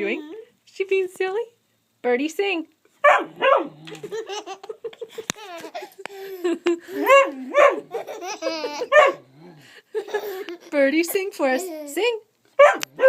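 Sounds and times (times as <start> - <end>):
baby belly-laughing: 3.9 - 7.1, 7.8 - 9.2, 10.0 - 10.8.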